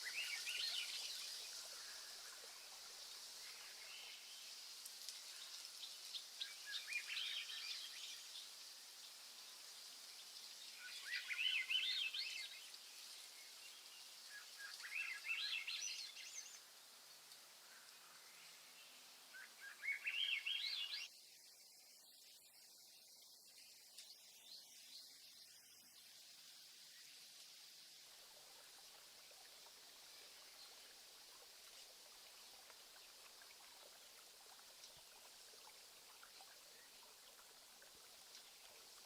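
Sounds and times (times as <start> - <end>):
songbird singing: 0.0 - 27.6
faint outdoor hiss: 0.0 - 39.0.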